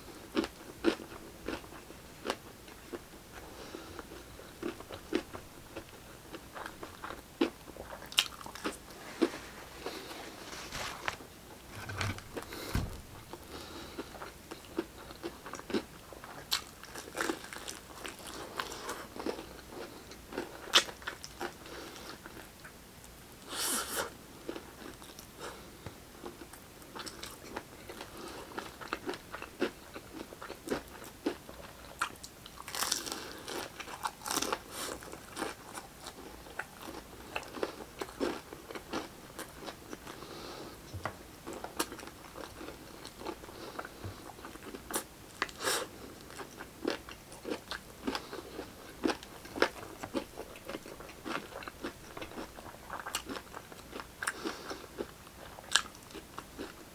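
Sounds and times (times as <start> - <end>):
crunchy bites and chewing: 32.6 - 35.6.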